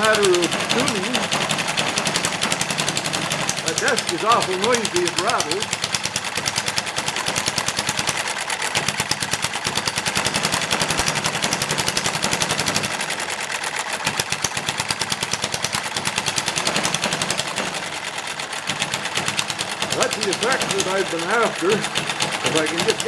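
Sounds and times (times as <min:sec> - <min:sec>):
desk rattling: 0:00.0 - 0:13.0
small engine clattering: 0:00.0 - 0:23.0.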